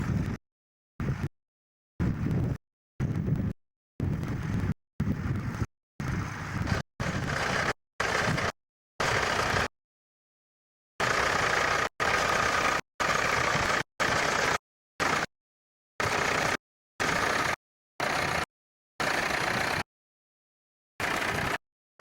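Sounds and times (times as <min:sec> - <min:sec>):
tractor engine running: 0:03.1 - 0:09.7, 0:11.0 - 0:15.3, 0:16.0 - 0:19.9, 0:21.0 - 0:21.6.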